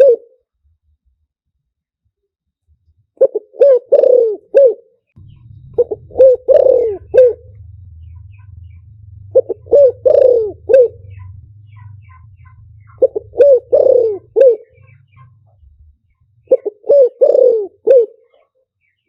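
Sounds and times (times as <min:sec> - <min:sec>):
dove cooing: 0:00.0 - 0:00.4, 0:03.2 - 0:18.6
low steady hum: 0:05.1 - 0:18.2.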